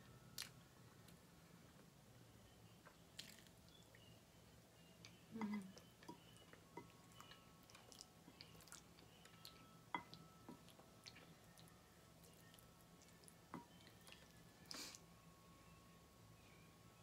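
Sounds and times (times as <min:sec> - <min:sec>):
chewing soft food: 0:02.8 - 0:04.1, 0:05.0 - 0:14.8.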